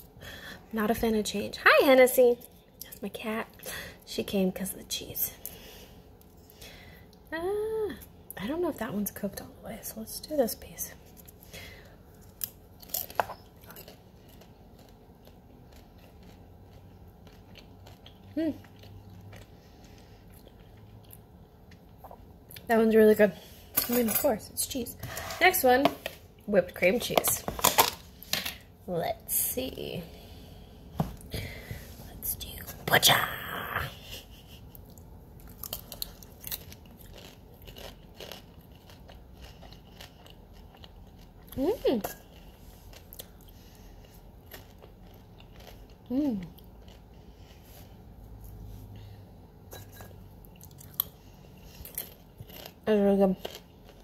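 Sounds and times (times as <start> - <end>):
popcorn crunching: 12.2 - 22.0, 34.8 - 47.3, 50.5 - 54.0
chewing: 12.2 - 22.7, 34.7 - 47.8, 49.7 - 54.0.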